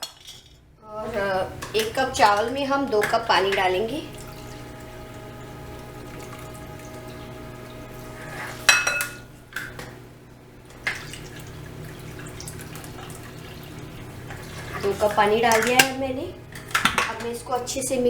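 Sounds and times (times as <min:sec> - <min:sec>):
water pouring into a dish: 0:01.6 - 0:08.7, 0:10.8 - 0:17.2
cup clinking against dish: 0:08.7 - 0:09.2.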